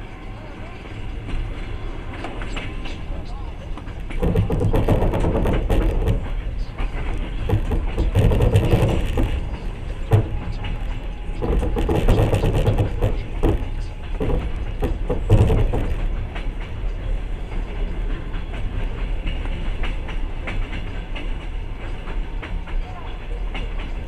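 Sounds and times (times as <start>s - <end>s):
train wheels rumbling on rails: 0.0s - 24.0s
wheels knocking over rail joints: 3.8s - 16.8s.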